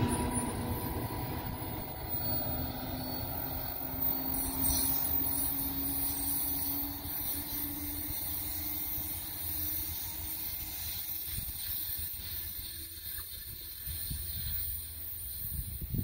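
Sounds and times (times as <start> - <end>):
constant low rumble: 0.0 - 7.4
electric train humming: 0.0 - 16.0.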